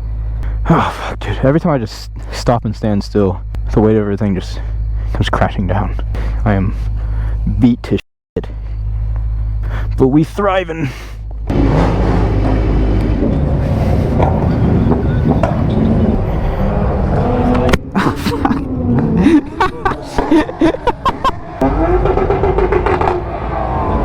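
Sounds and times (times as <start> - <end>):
vehicle engines revving: 10.6 - 24.0
short pitch sweeps: 11.5 - 17.9.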